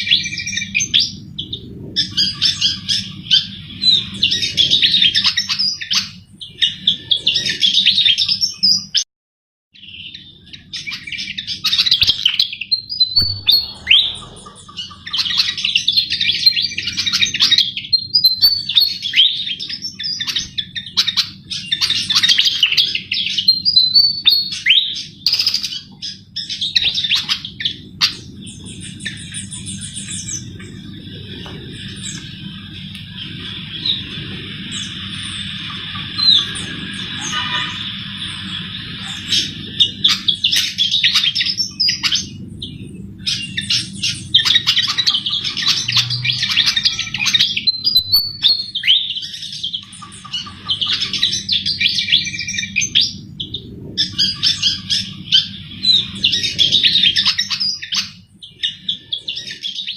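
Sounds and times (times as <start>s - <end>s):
bird twittering song: 0.0s - 9.0s, 9.8s - 59.9s
low hum: 12.8s - 16.4s.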